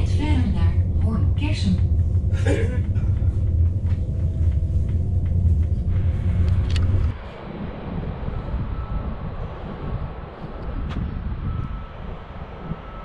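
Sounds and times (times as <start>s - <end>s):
outdoor ambient noise: 0.0s - 13.0s
train interior rumble: 0.0s - 13.0s.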